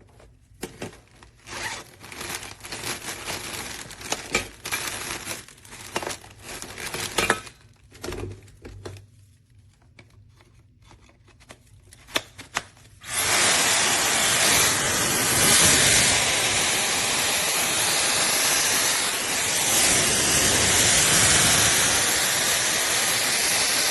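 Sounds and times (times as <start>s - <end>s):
packaging crinkling: 0.0s - 7.8s.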